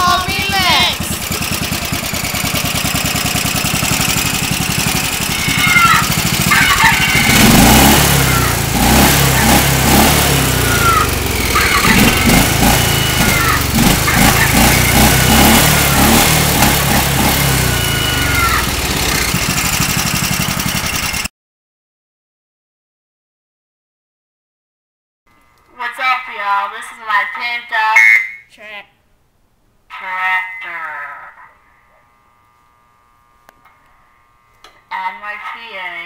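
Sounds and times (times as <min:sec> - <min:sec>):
lawn tractor engine running: 0:00.0 - 0:21.3.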